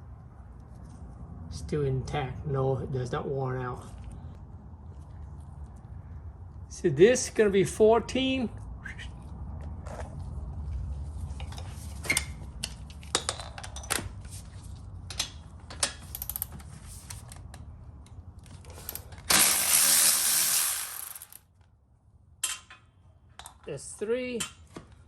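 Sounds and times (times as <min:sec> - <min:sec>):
loud rasping burst: 0:18.9 - 0:21.4.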